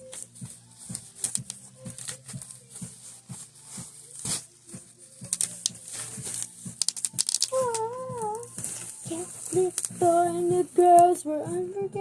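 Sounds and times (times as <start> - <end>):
packaging rustling and clicking: 5.2 - 7.9.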